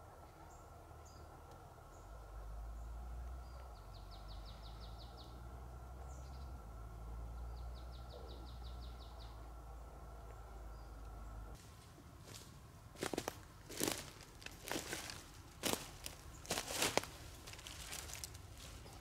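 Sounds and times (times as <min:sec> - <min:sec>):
steady low rumble: 0:00.0 - 0:19.0
songbird trilling: 0:07.4 - 0:09.5.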